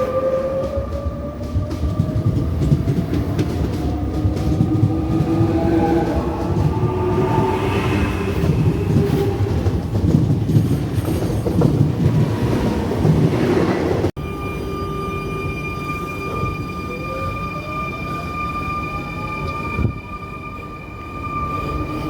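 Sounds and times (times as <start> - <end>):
train wheels rumbling on track: 0.0 - 14.1.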